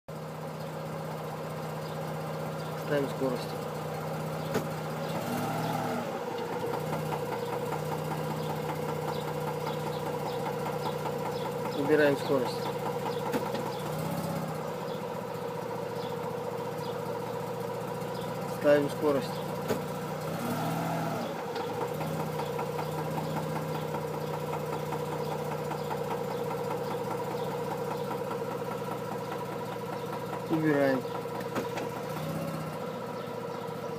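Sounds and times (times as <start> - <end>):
rotary engine idling: 0.1 - 33.9
sharp knock of transmission: 4.4 - 4.8, 13.1 - 13.8.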